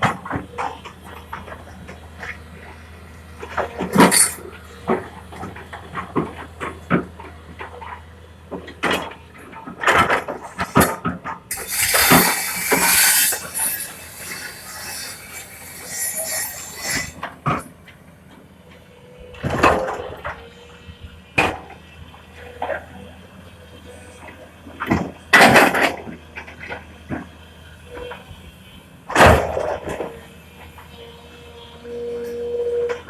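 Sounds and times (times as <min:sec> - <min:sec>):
rushing noise: 0:11.5 - 0:17.2.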